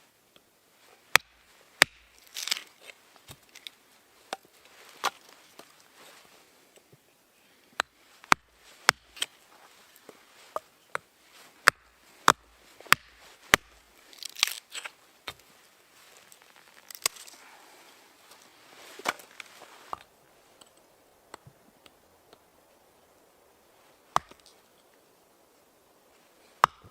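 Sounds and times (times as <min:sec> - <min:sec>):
crinkling rustle: 0:00.8 - 0:06.9, 0:08.0 - 0:20.9.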